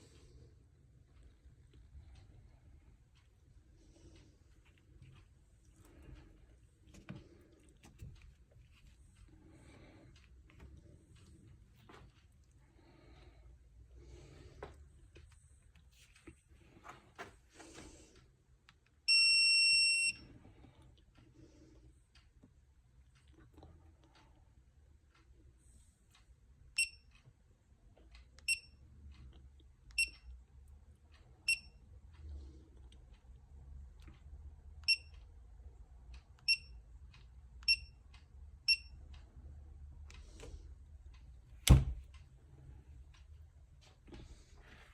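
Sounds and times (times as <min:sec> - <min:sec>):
torque wrench beeps: 0:19.1 - 0:20.2, 0:26.8 - 0:27.0, 0:30.0 - 0:30.2, 0:31.5 - 0:31.8, 0:36.5 - 0:36.7, 0:38.7 - 0:38.9.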